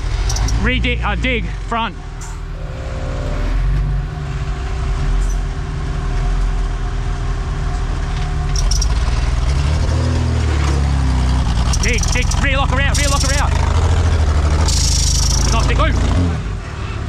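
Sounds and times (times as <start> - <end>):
truck engine under load: 2.0 - 6.6, 10.8 - 16.0.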